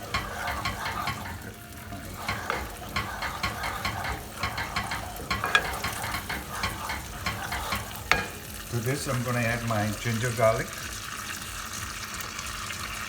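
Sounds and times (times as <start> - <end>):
spoon scraping a pan: 0.0 - 10.3
sauce sizzling in a hot pan: 0.0 - 13.0.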